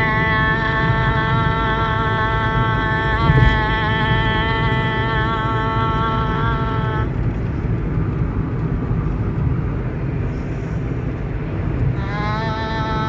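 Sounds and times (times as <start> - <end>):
steady low rumble: 0.0 - 13.0
sustained pitched tone: 2.4 - 6.2.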